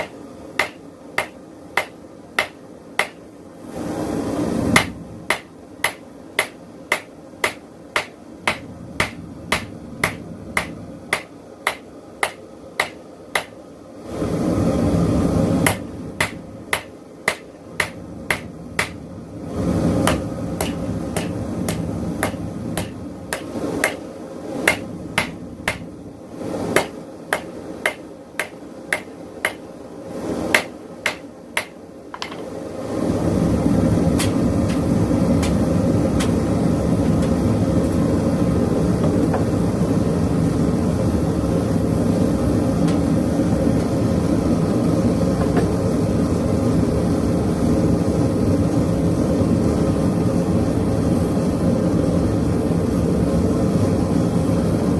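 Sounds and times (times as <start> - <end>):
hammer striking metal on anvil: 0.0 - 3.2, 4.8 - 13.6, 15.6 - 19.0, 20.0 - 24.0, 24.7 - 25.9, 26.8 - 29.6, 30.5 - 32.4.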